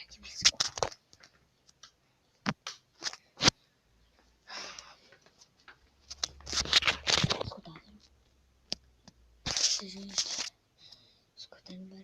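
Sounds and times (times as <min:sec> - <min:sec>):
sharp clicks and light knocks: 0:00.3 - 0:03.2.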